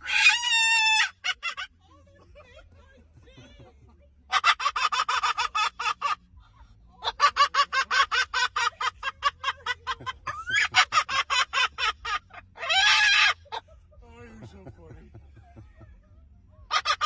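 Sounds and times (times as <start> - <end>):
bird cackling: 0.0 - 1.8, 4.3 - 6.4, 7.0 - 13.7, 16.6 - 17.0.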